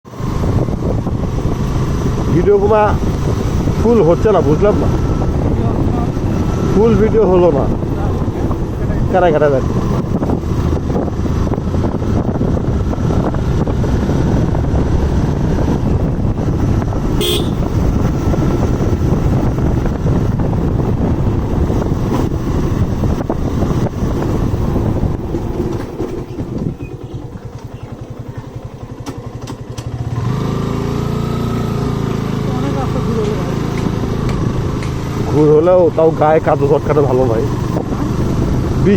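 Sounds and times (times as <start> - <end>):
motorcycle engine running: 0.1 - 38.9
wind rumble on microphone: 0.1 - 38.9
high-pitched horn toot: 17.2 - 17.7.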